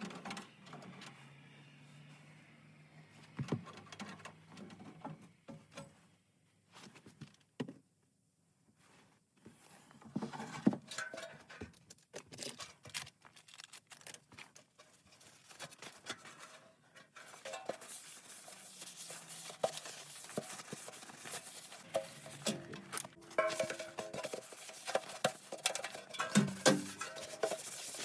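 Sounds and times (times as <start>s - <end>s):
parts and tools clattering: 0.0s - 1.2s, 10.1s - 18.5s, 19.2s - 28.0s.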